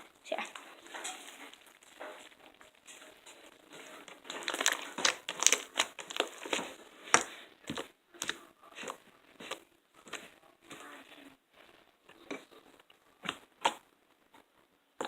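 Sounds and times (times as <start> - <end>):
slime squeezed by hand: 4.1 - 7.3.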